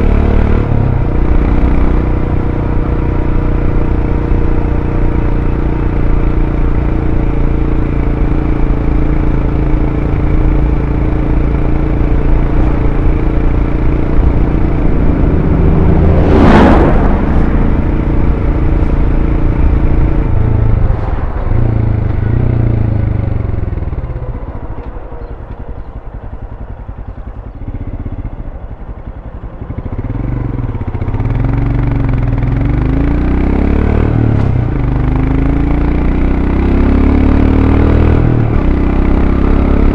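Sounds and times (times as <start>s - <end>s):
motorcycle engine cruising: 0.0s - 39.9s
sharp rush of noise: 13.5s - 23.6s.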